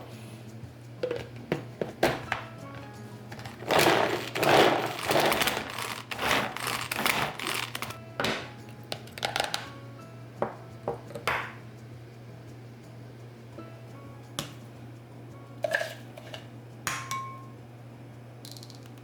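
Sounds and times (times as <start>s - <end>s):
quiet background music: 0.0s - 19.0s
kitchen utensils clattering and scraping: 1.0s - 8.5s, 15.6s - 17.2s.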